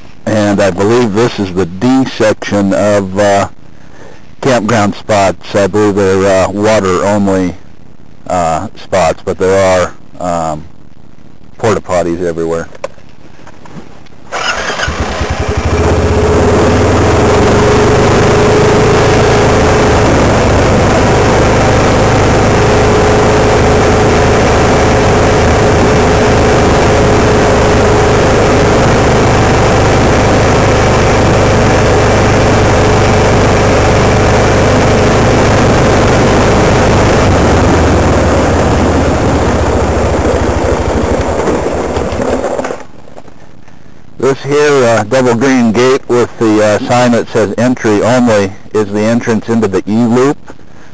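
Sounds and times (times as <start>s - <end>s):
loud road noise: 14.3s - 42.8s
vehicle engine running: 14.4s - 42.6s
steady hum: 15.0s - 50.9s.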